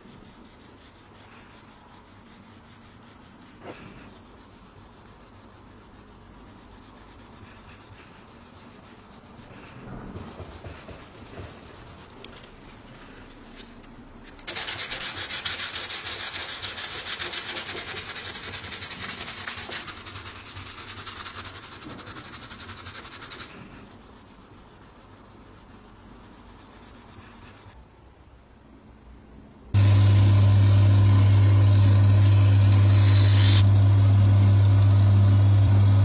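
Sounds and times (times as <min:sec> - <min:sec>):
rasping rubbing noise: 0:29.8 - 0:33.7.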